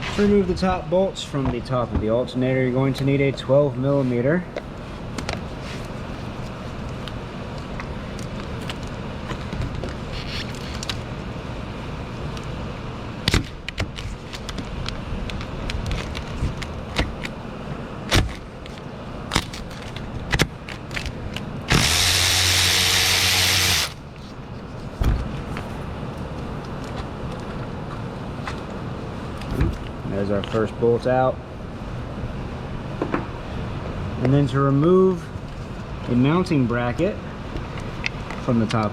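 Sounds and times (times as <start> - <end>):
cordless power tool running: 21.7 - 24.0.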